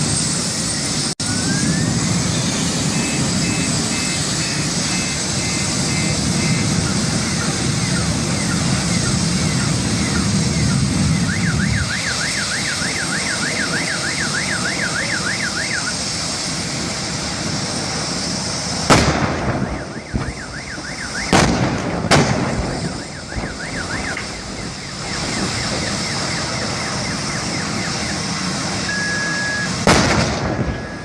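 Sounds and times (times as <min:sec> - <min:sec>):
steady rushing roar: 0:00.0 - 0:31.0
car alarm warbling: 0:01.2 - 0:16.1, 0:19.5 - 0:21.5, 0:22.5 - 0:29.8, 0:30.6 - 0:31.0
loud explosion bangs: 0:18.8 - 0:25.9, 0:29.8 - 0:31.0.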